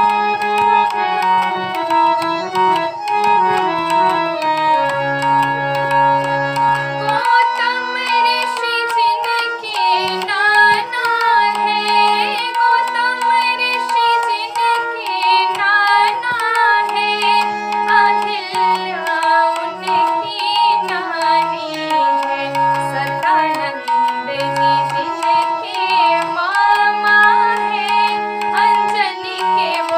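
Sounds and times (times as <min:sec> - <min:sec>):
light hand percussion: 0:00.0 - 0:29.9
woman singing: 0:07.0 - 0:29.9.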